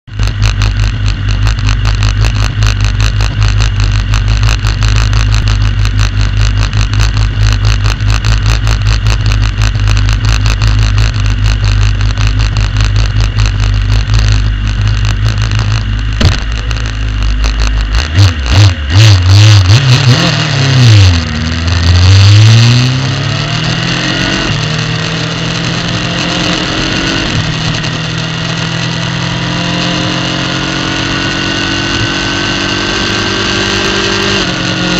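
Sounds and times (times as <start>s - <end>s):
motorcycle engine: 0.0s - 34.9s
fast rattle of clicks: 0.1s - 18.0s.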